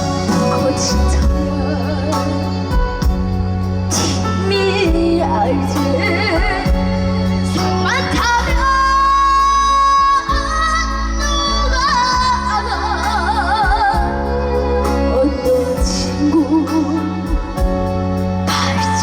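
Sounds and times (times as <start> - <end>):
person singing with vibrato: 0.0 - 3.0
backing track music: 0.0 - 19.0.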